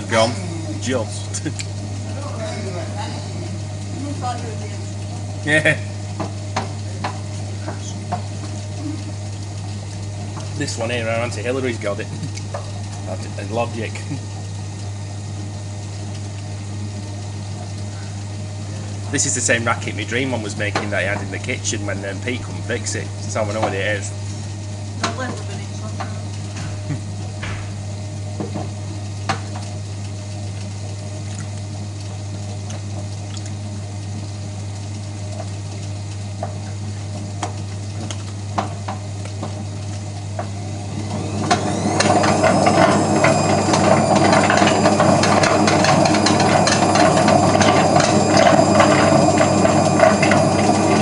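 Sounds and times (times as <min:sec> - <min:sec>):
washing machine drum turning: 0:00.0 - 0:51.0
loud rattling grinding: 0:34.1 - 0:51.0
rising spin whine: 0:40.4 - 0:51.0.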